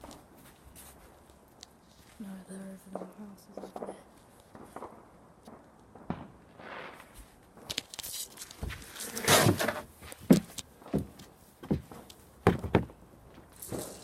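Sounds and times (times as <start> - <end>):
scuffing rustle: 0.0 - 2.2, 8.0 - 12.0
footsteps outdoors: 0.0 - 14.0.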